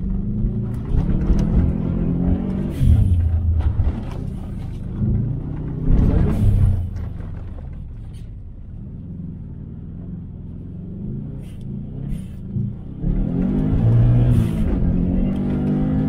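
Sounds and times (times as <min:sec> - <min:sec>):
car engine revving: 0:00.0 - 0:08.0, 0:08.7 - 0:16.0.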